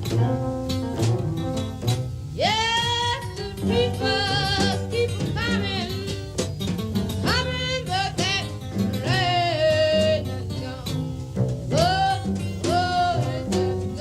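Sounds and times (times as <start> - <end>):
blues band playing: 0.0 - 14.0
woman singing long notes: 2.4 - 6.4, 7.2 - 14.0.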